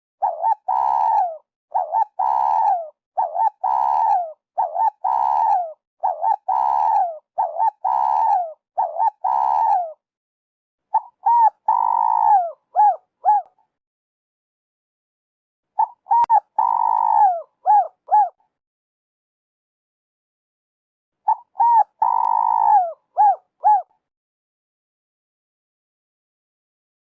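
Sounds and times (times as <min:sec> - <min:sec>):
dove cooing: 0:00.2 - 0:10.0, 0:10.9 - 0:13.6, 0:15.8 - 0:18.4, 0:21.3 - 0:23.9.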